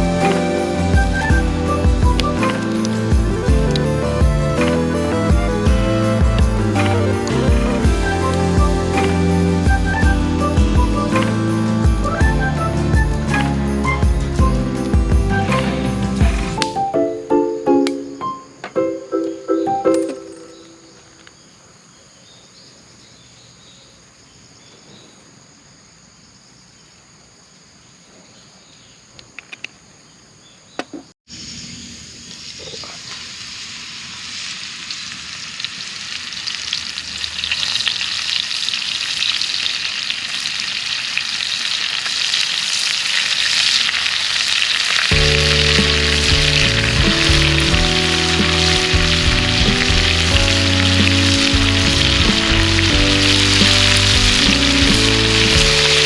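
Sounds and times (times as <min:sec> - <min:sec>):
background music: 0:00.0 - 0:21.0, 0:45.1 - 0:56.0
faint insect chirr: 0:20.2 - 0:41.7
food sizzling in a hot pan: 0:31.3 - 0:56.0.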